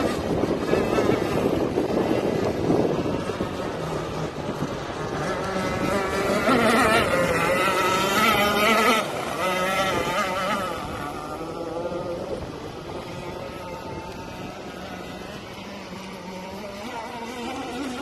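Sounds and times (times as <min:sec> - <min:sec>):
model boat motor whine: 0:00.0 - 0:18.0.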